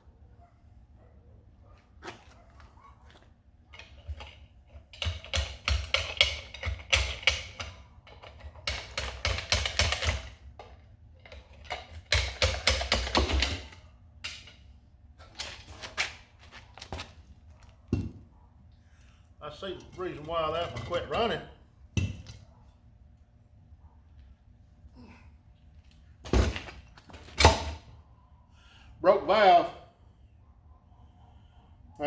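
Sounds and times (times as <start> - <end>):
hand tools clicking and clanking: 3.7 - 17.2, 19.5 - 21.4.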